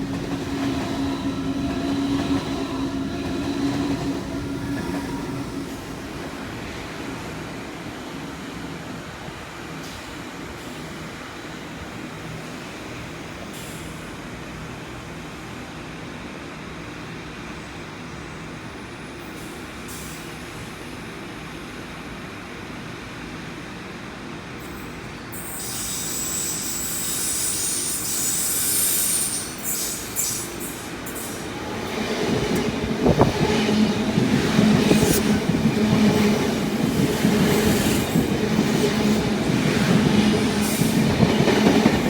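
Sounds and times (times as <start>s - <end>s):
wheels squealing on rails: 0.0s - 6.4s, 24.7s - 42.0s
train rumbling: 0.0s - 10.6s, 25.4s - 42.0s.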